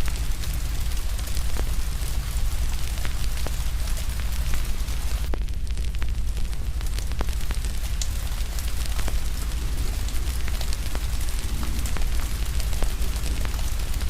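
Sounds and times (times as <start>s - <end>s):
fire crackling and popping: 0.0s - 14.0s
rain hissing: 0.0s - 14.0s
deep low rumble: 9.0s - 14.0s.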